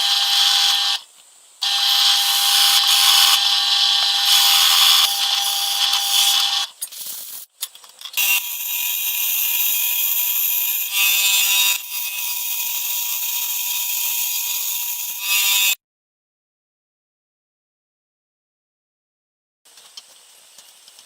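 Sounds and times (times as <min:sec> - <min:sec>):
high-speed spindle whine: 0:00.0 - 0:01.0, 0:01.6 - 0:06.7.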